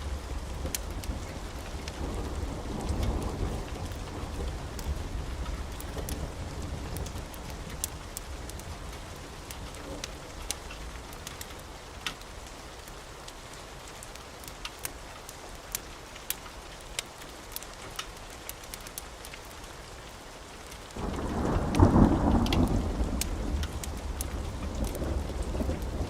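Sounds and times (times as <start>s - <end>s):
thunder rumbling: 0.0s - 10.5s, 21.0s - 26.0s
steady rain: 0.0s - 26.0s.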